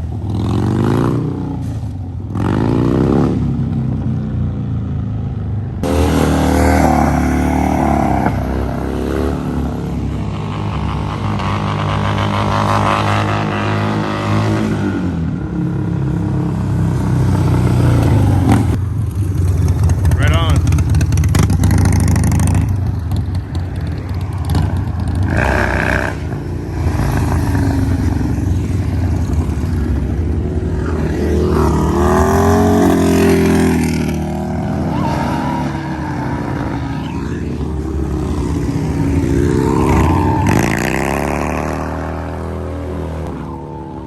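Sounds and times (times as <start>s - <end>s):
motorcycle engines revving: 0.0s - 44.0s.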